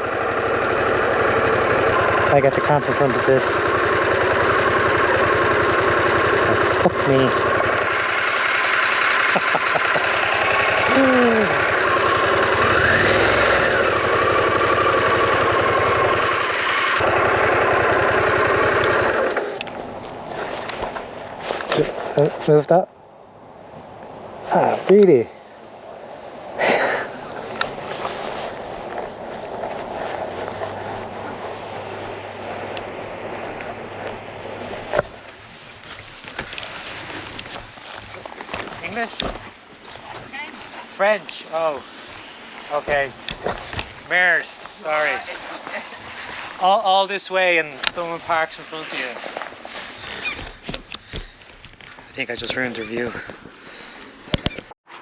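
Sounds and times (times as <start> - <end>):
van engine running: 0.0 - 21.8, 27.0 - 40.2.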